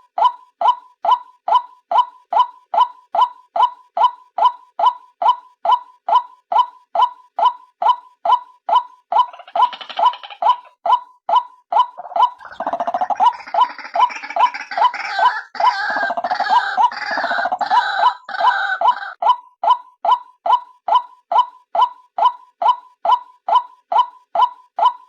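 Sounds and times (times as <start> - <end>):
gurgling chattering bird call: 9.2 - 10.8, 12.0 - 19.2.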